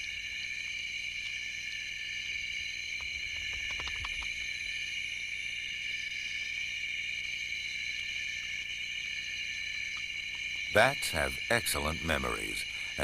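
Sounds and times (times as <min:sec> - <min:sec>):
crickets chirping: 0:00.0 - 0:13.0
soft clicks with low flutter: 0:03.0 - 0:04.5.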